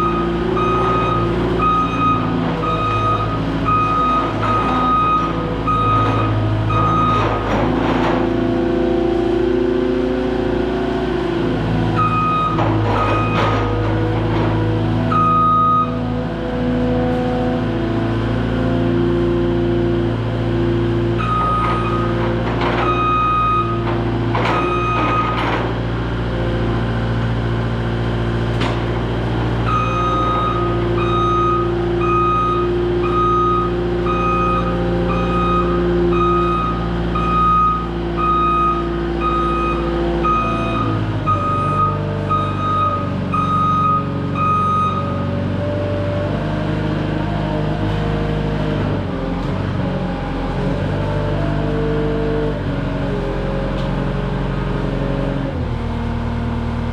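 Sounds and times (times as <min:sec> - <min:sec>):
reversing alarm beeping: 0:00.0 - 0:07.8, 0:12.0 - 0:14.1, 0:15.0 - 0:16.0, 0:21.2 - 0:22.2, 0:22.8 - 0:23.8, 0:24.5 - 0:25.4, 0:29.6 - 0:45.4
diesel engine running: 0:00.0 - 0:56.9.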